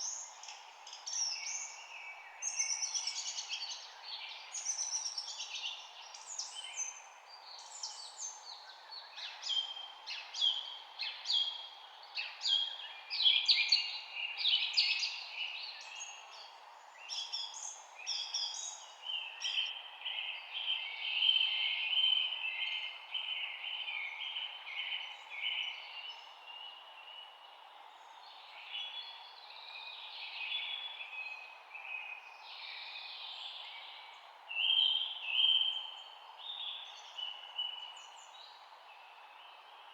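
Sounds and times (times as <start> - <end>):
songbirds chirping and singing: 12.2 - 27.4.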